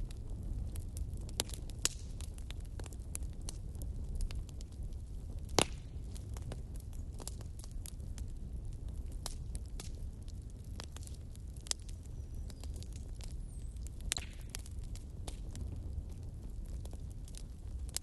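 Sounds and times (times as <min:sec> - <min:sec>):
low rumble of flame: 0:00.0 - 0:18.0
wood fire crackling and popping: 0:00.0 - 0:18.0.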